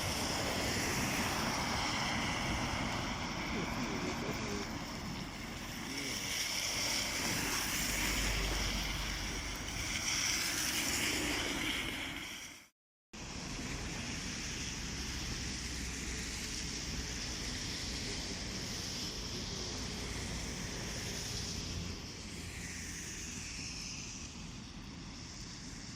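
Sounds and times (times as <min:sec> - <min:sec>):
wind noise: 0:00.0 - 0:12.6
road traffic rushing: 0:00.0 - 0:25.9.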